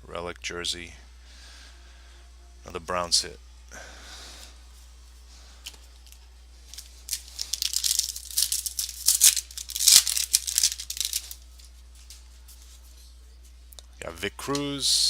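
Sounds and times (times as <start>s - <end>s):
foil wrapper crinkling and tearing: 5.6s - 12.2s.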